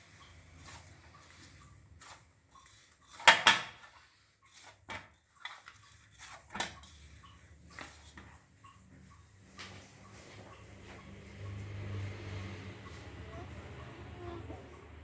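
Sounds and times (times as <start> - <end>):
kitchen utensils clattering: 3.0 - 8.2.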